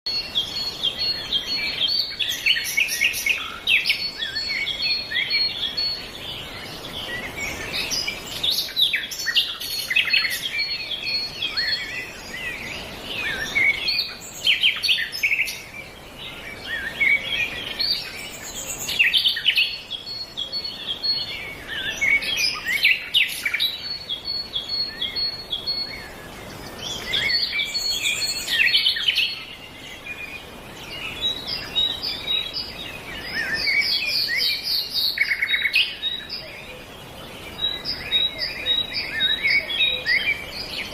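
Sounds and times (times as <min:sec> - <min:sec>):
birds chirping: 0:00.1 - 0:40.9.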